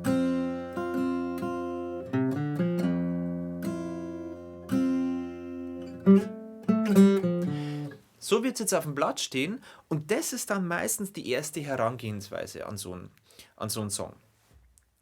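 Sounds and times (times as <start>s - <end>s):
acoustic guitar melody: 0.0s - 8.1s.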